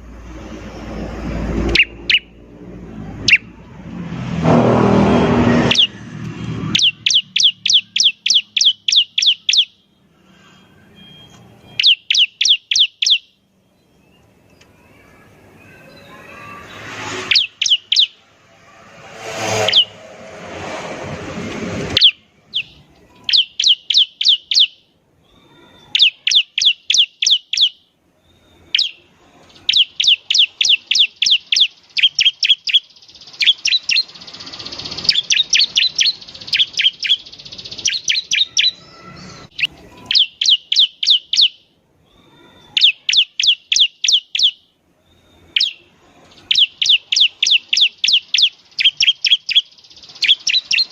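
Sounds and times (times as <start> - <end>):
rushing noise: 0.0 - 7.4, 15.3 - 22.6
bird singing sharp high notes: 1.6 - 2.4, 4.2 - 20.8, 21.9 - 41.7, 42.5 - 50.9.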